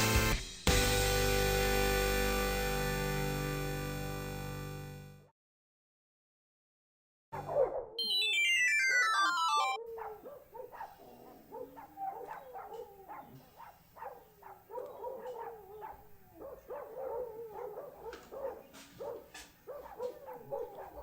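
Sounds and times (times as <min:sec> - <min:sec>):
falling run of tones: 0:08.0 - 0:09.8
dog whining and yelping: 0:08.4 - 0:21.0.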